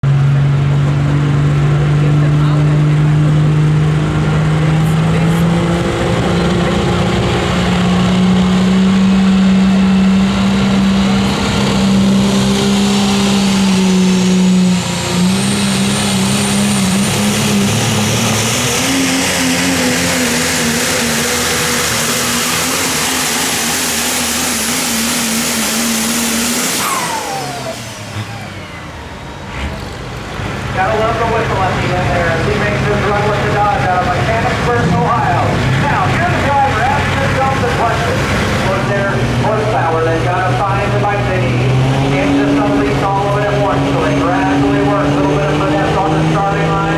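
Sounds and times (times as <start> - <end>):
diesel truck engine at full throttle: 0.0 - 46.9
high turbo whistle: 8.7 - 29.6.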